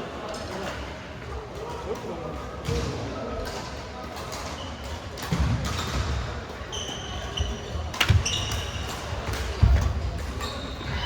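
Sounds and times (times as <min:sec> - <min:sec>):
court shoe squeaks: 0:06.7 - 0:11.0.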